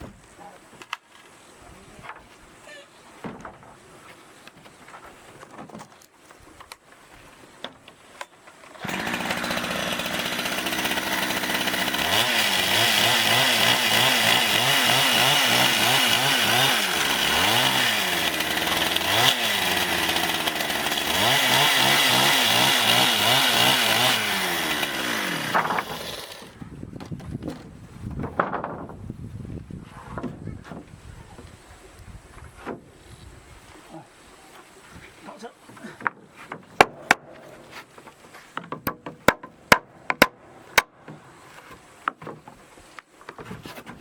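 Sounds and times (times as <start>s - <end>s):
chainsaw cutting wood: 8.6s - 26.6s, 36.8s - 37.9s, 38.6s - 41.2s.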